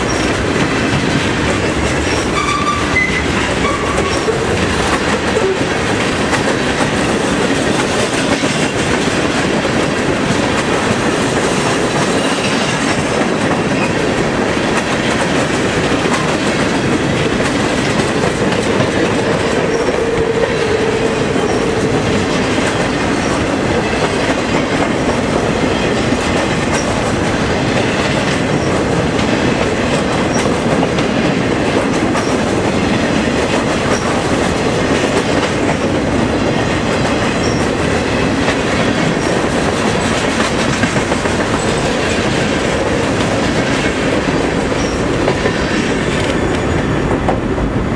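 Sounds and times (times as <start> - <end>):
train wheels clicking over rail joints: 0.0 - 47.7.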